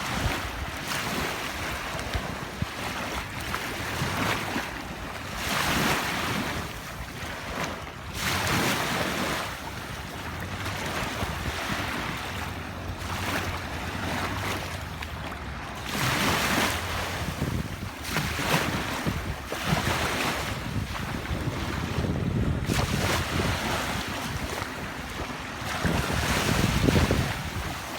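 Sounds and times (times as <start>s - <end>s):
wind blowing on microphone: 0.0s - 4.6s, 15.9s - 27.9s
sea waves washing onto beach: 0.0s - 27.9s.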